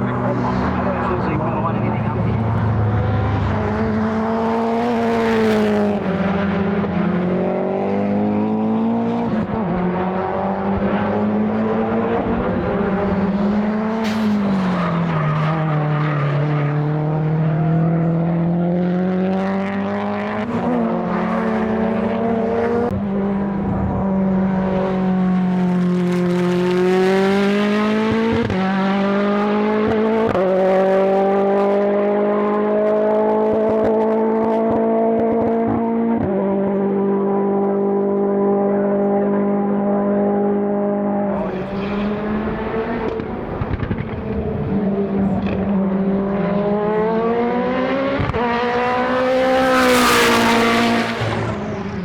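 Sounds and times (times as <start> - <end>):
race car engine under load: 0.0 - 52.0.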